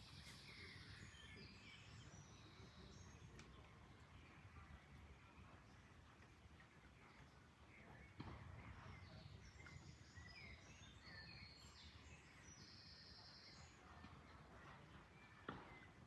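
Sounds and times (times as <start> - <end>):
faint birdsong: 0.0 - 16.0.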